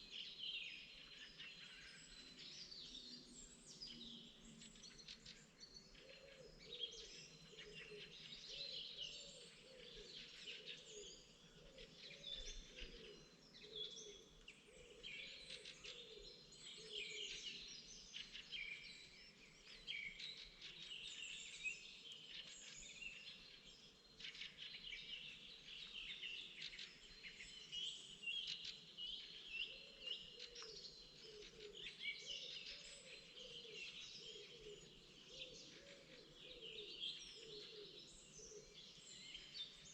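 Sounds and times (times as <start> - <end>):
songbirds chirping and trilling: 0.0 - 39.9
lower repeated bird calls: 24.3 - 39.9.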